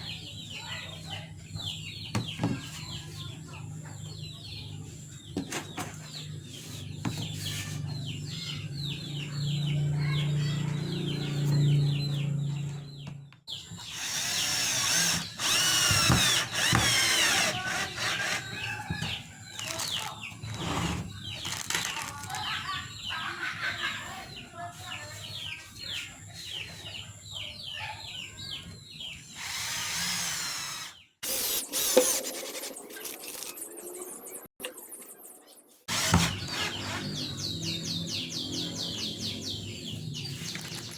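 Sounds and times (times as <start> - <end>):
small birds chirping: 0.0 - 31.9, 33.0 - 40.9
power drill running: 13.8 - 18.6, 29.4 - 32.2, 35.9 - 37.0.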